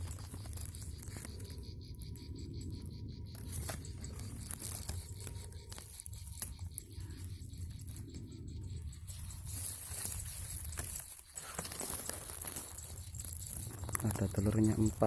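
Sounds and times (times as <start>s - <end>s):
steady low rumble: 0.0s - 11.0s
grass rustling and crackling: 0.0s - 15.0s.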